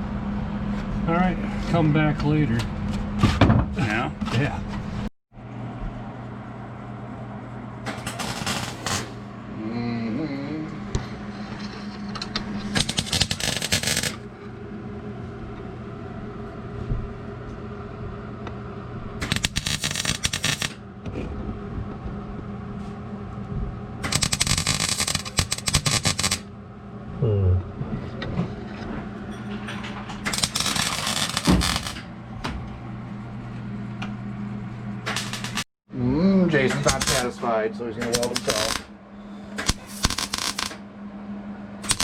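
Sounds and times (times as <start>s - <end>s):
steady low hum: 0.0s - 42.0s
electric welder crackling: 7.9s - 9.2s, 12.7s - 14.3s, 19.2s - 20.8s, 24.0s - 26.5s, 30.2s - 32.1s, 35.0s - 35.7s, 36.8s - 37.4s, 38.0s - 38.9s, 39.6s - 40.8s.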